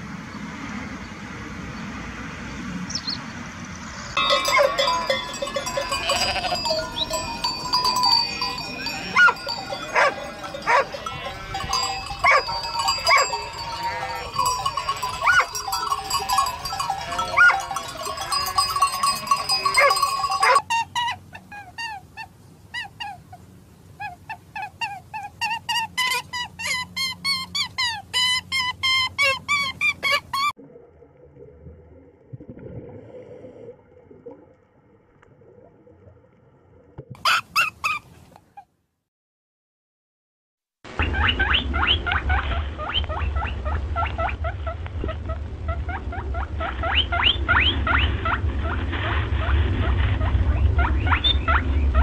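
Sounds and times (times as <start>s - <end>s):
ringing sheep bells: 4.2s - 20.9s
sheep bleating: 4.4s - 7.2s, 7.8s - 18.3s.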